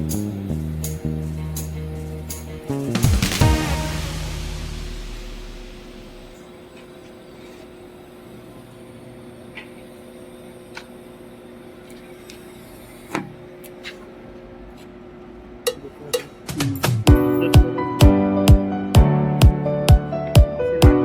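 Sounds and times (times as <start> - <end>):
steady machine hum: 0.0 - 17.9.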